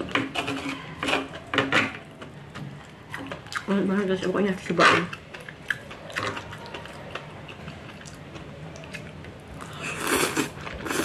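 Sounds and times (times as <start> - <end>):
person chewing: 5.1 - 11.0
noisy mouth sound: 9.6 - 11.0.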